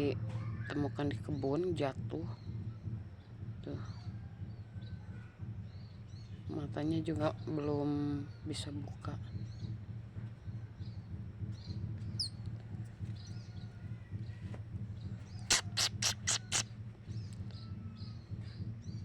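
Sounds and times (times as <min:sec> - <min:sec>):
steady low hum: 0:01.0 - 0:19.0
baby squirrel squeaking: 0:15.3 - 0:16.7.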